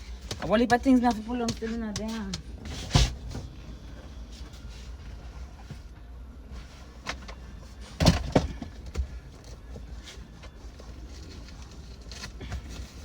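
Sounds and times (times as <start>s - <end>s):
knocks and thumps in a car: 0.0s - 3.7s, 7.1s - 9.8s
low steady rumble: 0.0s - 13.0s.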